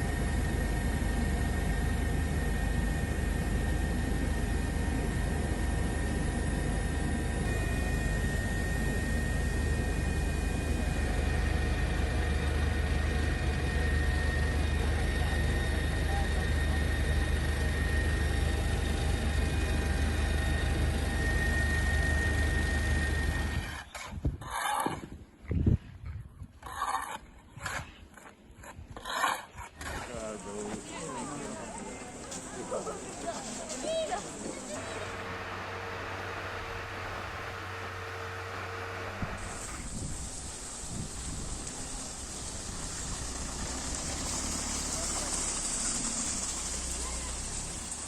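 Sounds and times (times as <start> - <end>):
helicopter rumbling: 0.0 - 24.5, 29.8 - 48.0.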